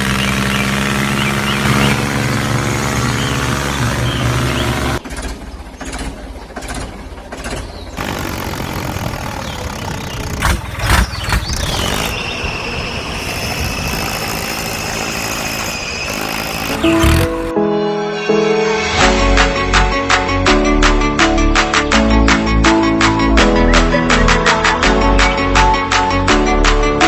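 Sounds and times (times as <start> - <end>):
small motor running: 0.0 - 5.3, 8.0 - 10.6, 11.4 - 17.5
music: 16.6 - 27.0.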